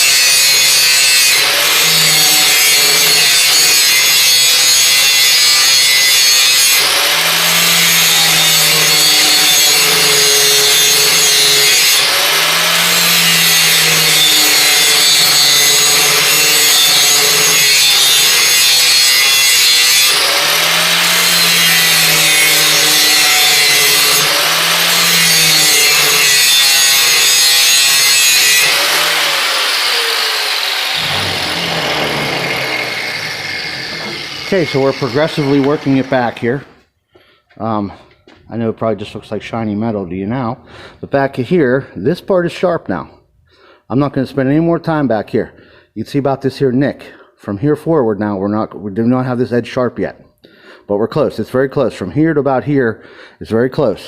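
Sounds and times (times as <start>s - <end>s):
electric grinder grinding steel: 0.0s - 36.8s.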